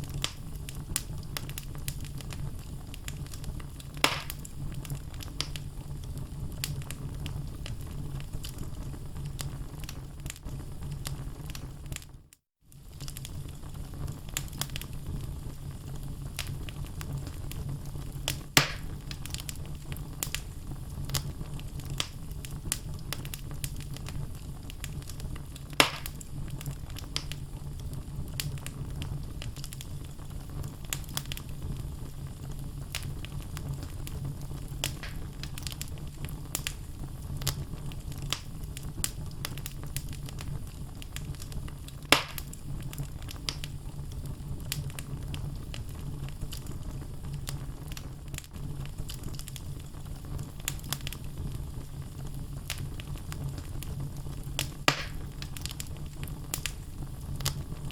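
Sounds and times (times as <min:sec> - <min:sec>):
wood fire crackling: 0:00.0 - 0:57.9
loud pops of logs: 0:04.0 - 0:04.5, 0:18.6 - 0:18.9, 0:25.8 - 0:26.2, 0:34.9 - 0:35.3, 0:42.1 - 0:42.5, 0:54.8 - 0:55.4.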